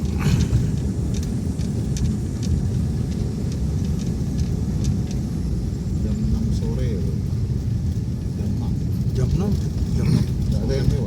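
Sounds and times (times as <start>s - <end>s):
vehicle road rumble: 0.0s - 11.0s
faint light ticks: 0.2s - 5.3s.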